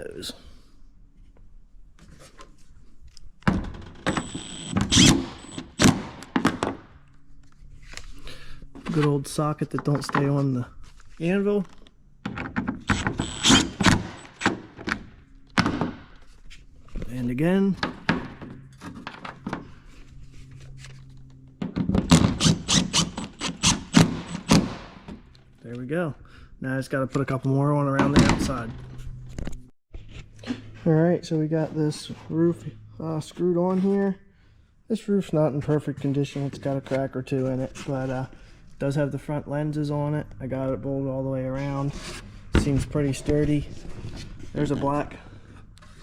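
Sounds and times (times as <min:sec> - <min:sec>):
impact driver whining: 0:03.8 - 0:06.6, 0:12.8 - 0:14.7, 0:21.9 - 0:25.0.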